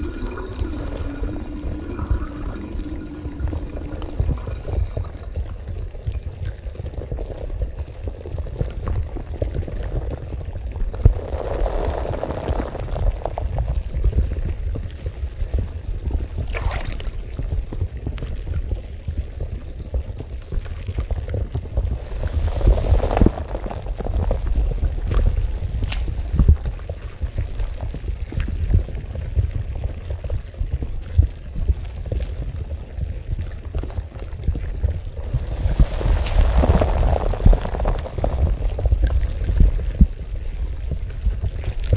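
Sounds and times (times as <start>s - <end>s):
bubbling water churning: 0.0s - 41.9s
rushes of water: 0.0s - 41.9s
deep low rumble: 8.8s - 41.9s.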